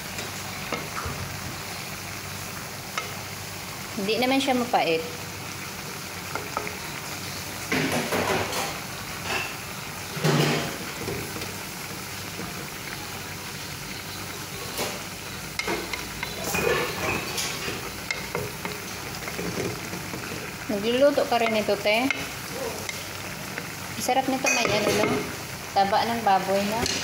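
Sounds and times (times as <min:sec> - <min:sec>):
food sizzling in a pan: 0:00.0 - 0:27.0
wooden spatula scraping a pan: 0:14.6 - 0:23.6.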